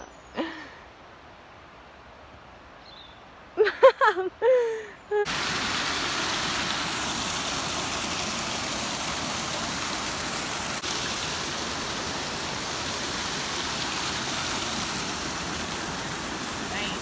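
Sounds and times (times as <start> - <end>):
stream water rushing: 5.3 - 17.0.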